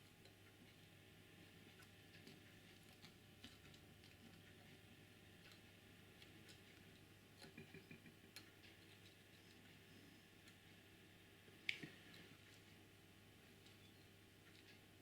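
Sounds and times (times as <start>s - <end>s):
faint handling clicks and taps: 1.5s - 10.8s.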